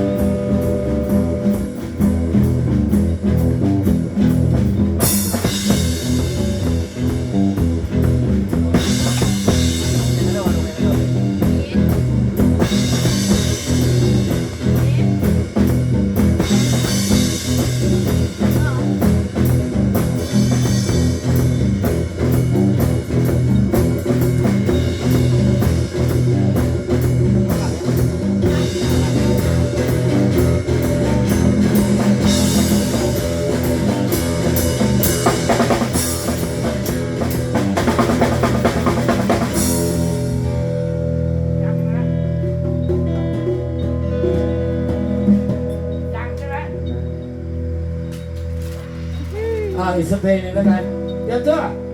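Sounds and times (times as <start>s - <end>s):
rock band playing: 0.0s - 51.9s.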